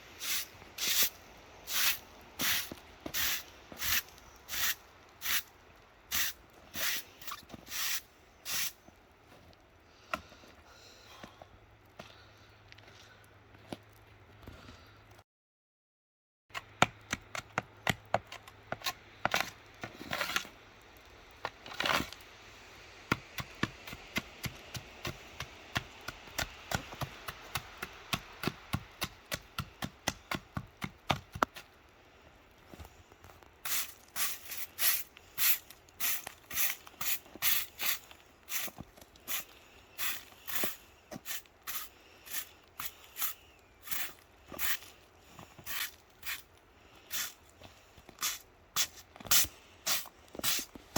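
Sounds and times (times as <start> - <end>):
tool scraping ice off rails: 0.2 - 5.5, 6.1 - 8.8, 18.8 - 20.6, 21.5 - 22.2, 33.6 - 46.5, 47.1 - 47.5, 48.1 - 50.9.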